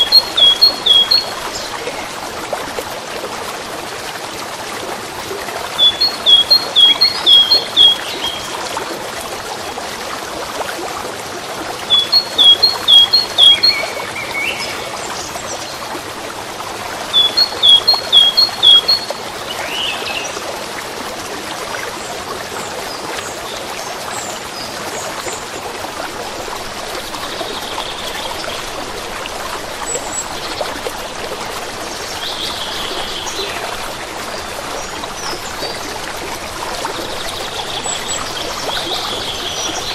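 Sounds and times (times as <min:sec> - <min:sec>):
faint bird chirps: 0:00.0 - 0:01.6, 0:05.8 - 0:08.4, 0:11.9 - 0:14.8, 0:17.2 - 0:19.9
songbird singing: 0:00.0 - 0:02.1, 0:05.8 - 0:08.5, 0:11.9 - 0:15.8, 0:17.1 - 0:20.4, 0:31.8 - 0:35.9, 0:36.9 - 0:39.9
stream trickling: 0:00.0 - 0:39.9.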